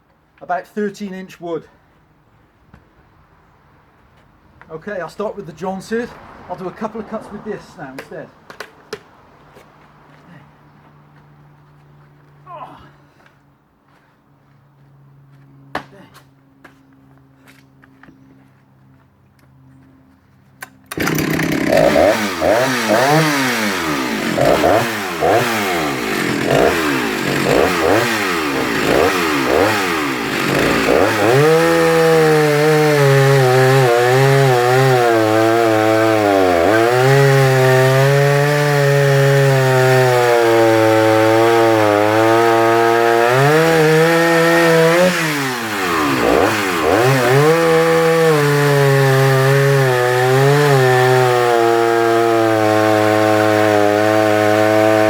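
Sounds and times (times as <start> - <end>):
chainsaw revving and cutting log: 20.9 - 55.0.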